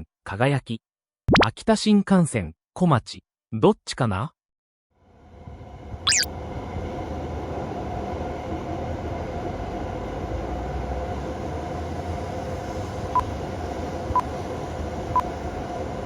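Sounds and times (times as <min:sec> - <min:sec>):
train running by: 0:05.1 - 0:16.0
short beep: 0:06.1 - 0:06.3
short falling tone: 0:06.1 - 0:06.3.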